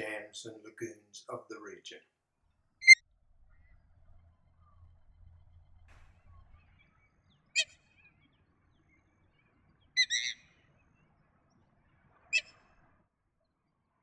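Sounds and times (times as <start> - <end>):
sharp bird calls: 2.8 - 12.9.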